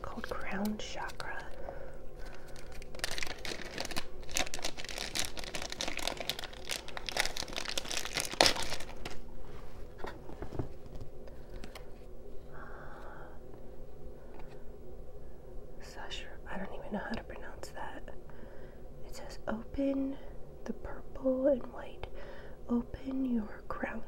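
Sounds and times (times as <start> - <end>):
crinkly packaging unwrapped: 0.0 - 12.0.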